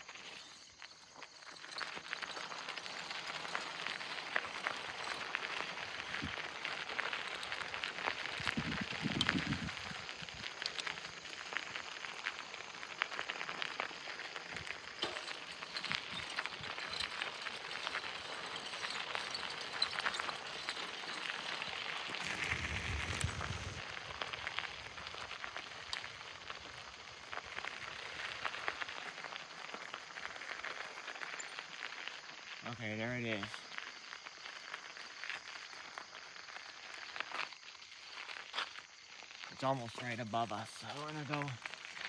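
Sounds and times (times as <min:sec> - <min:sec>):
dense crackling patter: 0:00.0 - 0:42.0
light breeze: 0:00.1 - 0:31.9
low rumbles: 0:22.2 - 0:23.9.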